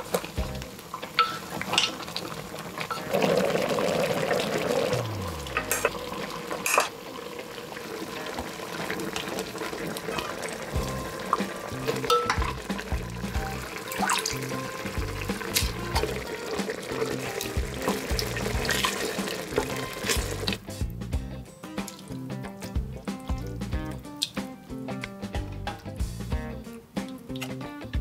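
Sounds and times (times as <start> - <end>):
utensil stirring and clicking on pan: 0.0 - 3.1, 8.4 - 13.3
food sizzling in a pan: 0.0 - 20.7
background music with bass line: 0.3 - 0.7, 4.9 - 6.1, 10.7 - 28.0.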